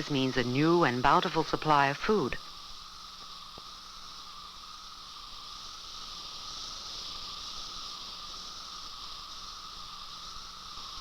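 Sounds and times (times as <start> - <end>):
cicadas buzzing drone: 0.0 - 11.0.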